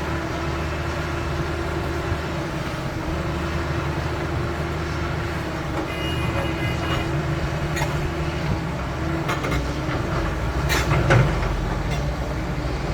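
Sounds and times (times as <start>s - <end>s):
excavator diesel engine running: 0.0s - 12.9s.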